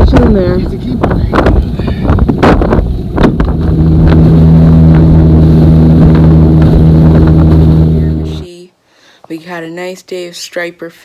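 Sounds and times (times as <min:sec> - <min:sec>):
motorboat engine drone: 0:00.0 - 0:08.5
wind noise: 0:00.0 - 0:08.5.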